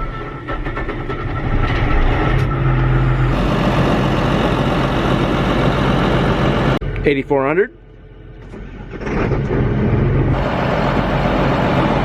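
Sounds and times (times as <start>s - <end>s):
diesel engine throttling up: 2.8s - 7.0s, 8.1s - 12.0s.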